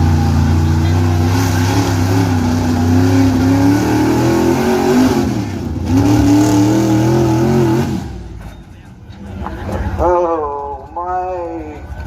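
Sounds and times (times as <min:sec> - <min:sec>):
pickup truck engine at high revs: 0:00.0 - 0:08.5.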